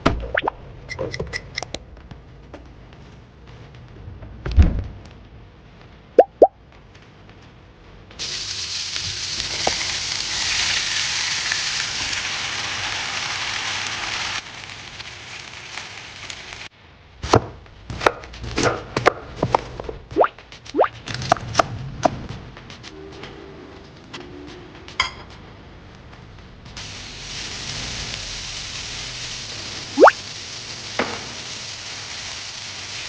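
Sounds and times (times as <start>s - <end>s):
thump: 4.5s - 4.9s
steady hiss: 8.2s - 16.7s, 26.6s - 33.0s.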